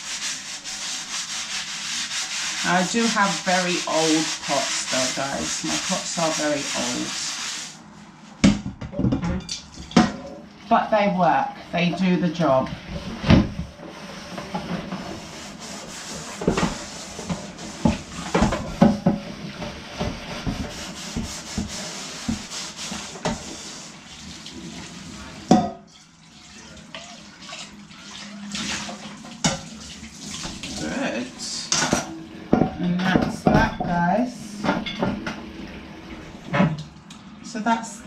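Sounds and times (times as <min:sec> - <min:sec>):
metal pot being scrubbed: 0:00.0 - 0:07.9, 0:10.0 - 0:36.5
pot knocking against sink: 0:08.4 - 0:10.3, 0:16.4 - 0:22.5, 0:25.5 - 0:25.8
tap water running into sink: 0:16.3 - 0:31.0.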